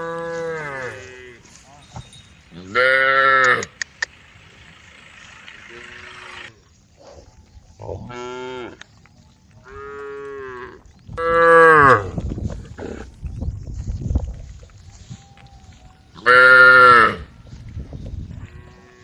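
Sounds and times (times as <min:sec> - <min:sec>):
cows mooing: 0:00.0 - 0:01.6, 0:02.6 - 0:03.8, 0:05.6 - 0:06.5, 0:09.6 - 0:13.2, 0:16.2 - 0:17.3, 0:18.4 - 0:19.0.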